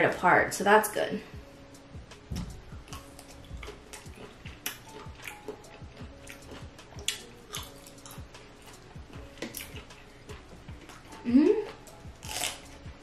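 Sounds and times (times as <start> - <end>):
faint background music: 0.0 - 13.0
wet chewing clicks and smacks: 2.4 - 12.6.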